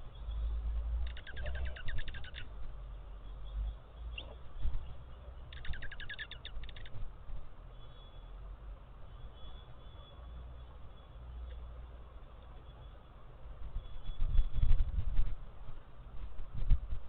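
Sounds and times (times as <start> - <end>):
songbird trilling: 0.0 - 2.6, 3.2 - 7.0.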